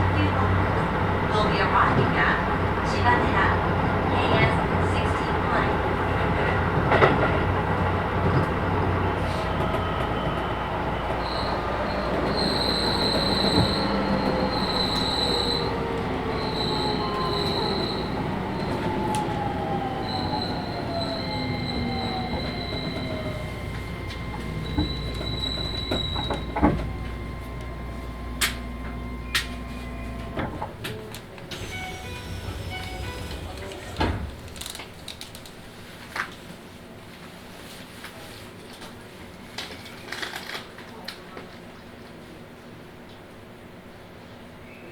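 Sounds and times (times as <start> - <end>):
train motors whining: 0.0 - 36.3
wheel and rail rumble: 0.0 - 43.2
high wheel squeal: 9.2 - 30.4, 31.6 - 34.8.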